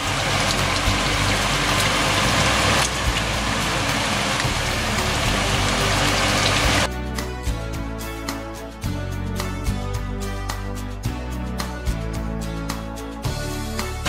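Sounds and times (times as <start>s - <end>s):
chicken sizzling in hot oil: 0.0s - 6.9s
background music: 0.0s - 14.0s.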